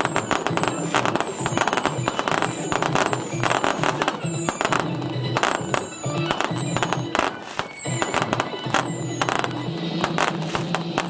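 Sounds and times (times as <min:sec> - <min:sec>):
fireworks crackling and popping: 0:00.0 - 0:11.0
music with a steady beat: 0:00.0 - 0:11.0.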